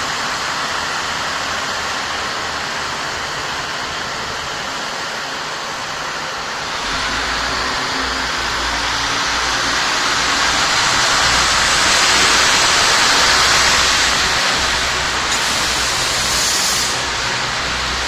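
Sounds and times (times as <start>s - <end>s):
rail vehicle wheels on rail: 0.0s - 18.0s
low hum: 6.6s - 15.3s
sharp hiss: 6.6s - 18.0s.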